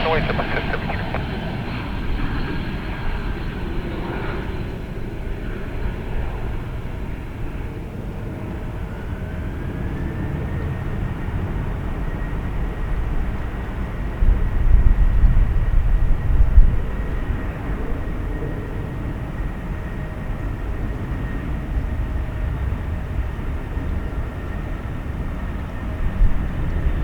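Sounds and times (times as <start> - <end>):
jet engines rumbling: 0.0 - 7.7
faint jet engine whine: 0.0 - 27.0.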